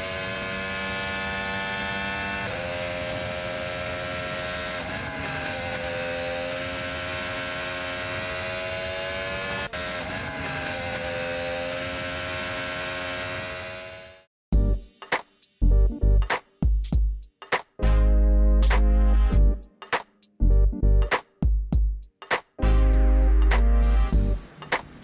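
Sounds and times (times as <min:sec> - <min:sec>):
small electric motor and gears whining: 0:00.0 - 0:14.3.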